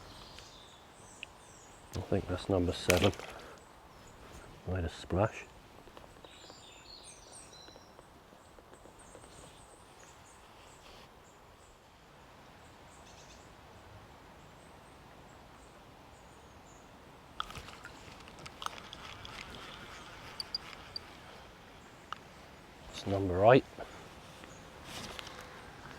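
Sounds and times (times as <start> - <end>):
faint bird chirps: 6.2 - 11.8, 19.6 - 22.2.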